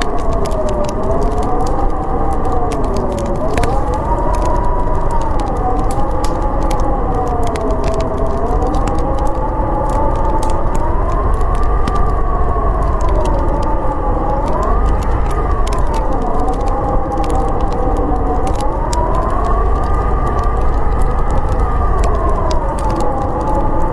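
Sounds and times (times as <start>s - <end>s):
howling blizzard wind: 0.0s - 23.9s
wood fire crackling: 0.0s - 23.9s.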